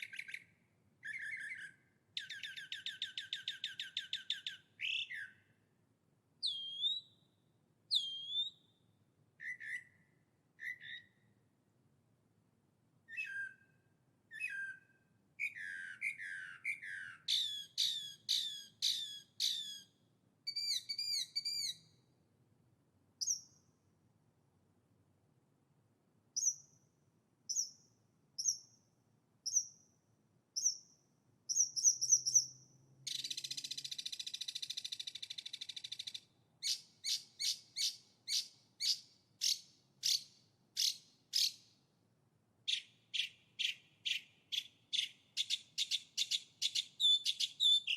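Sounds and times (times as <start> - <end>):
songbird singing: 0.0 - 5.6, 6.4 - 11.4, 13.1 - 22.1, 23.2 - 23.8, 26.4 - 26.9, 27.5 - 30.0, 30.6 - 41.8, 42.7 - 47.9.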